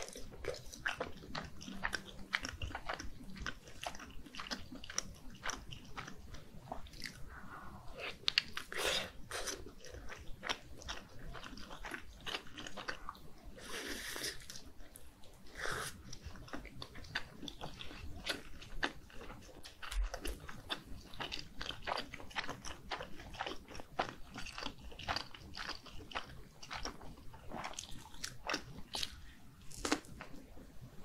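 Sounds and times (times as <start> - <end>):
wet chewing clicks and smacks: 0.0 - 7.2, 9.5 - 13.2, 14.4 - 30.4.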